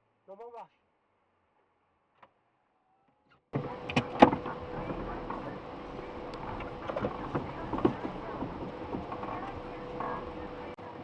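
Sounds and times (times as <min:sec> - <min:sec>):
steady machine noise: 0:03.6 - 0:11.0.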